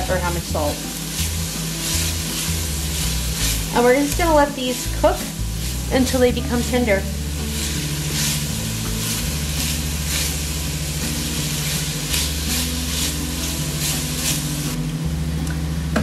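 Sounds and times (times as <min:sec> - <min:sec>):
vegetables sizzling in a pot: 0:00.0 - 0:15.0
spatula scraping: 0:01.0 - 0:04.9, 0:05.5 - 0:10.5, 0:11.2 - 0:14.8.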